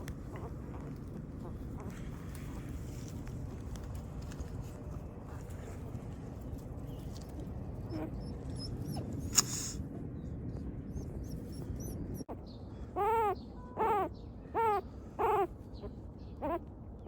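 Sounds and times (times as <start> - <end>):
sharp click: 9.3 - 9.7
puppy whimpering cries: 13.0 - 16.6.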